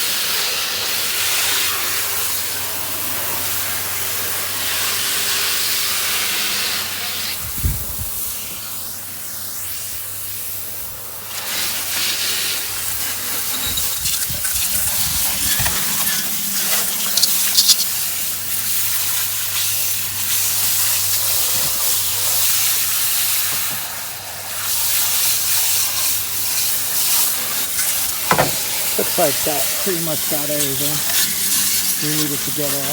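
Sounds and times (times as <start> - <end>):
hose spray hissing: 11.3 - 23.9, 24.6 - 32.9.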